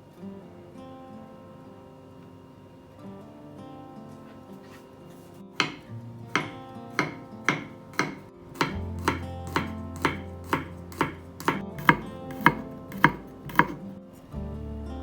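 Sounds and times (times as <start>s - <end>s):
knife chopping on cutting board: 5.6s - 13.8s.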